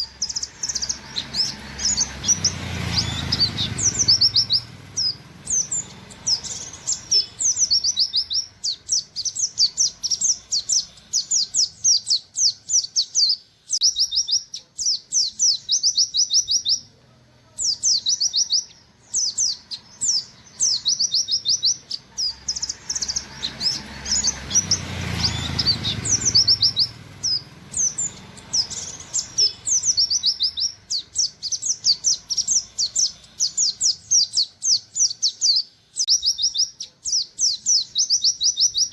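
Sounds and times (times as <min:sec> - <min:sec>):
bird singing fast high notes: 0:00.0 - 0:12.2.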